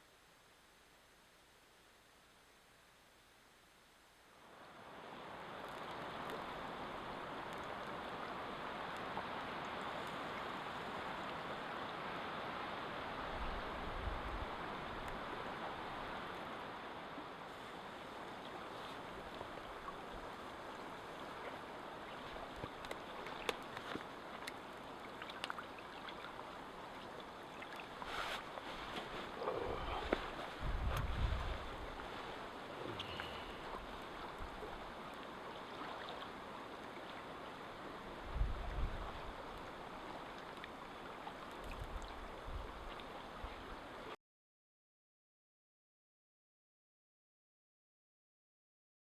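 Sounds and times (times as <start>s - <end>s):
faint clicks: 5.6s - 6.5s, 7.5s - 8.0s, 22.1s - 25.6s.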